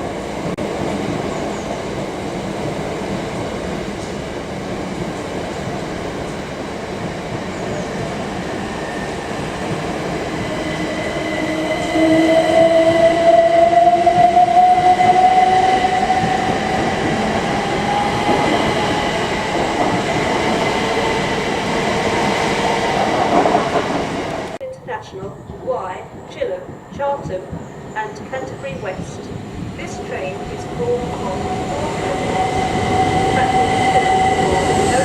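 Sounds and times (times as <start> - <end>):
train wheels on rails: 0.0 - 24.6, 25.2 - 35.0
train whine rising in pitch: 8.6 - 23.0, 30.3 - 35.0.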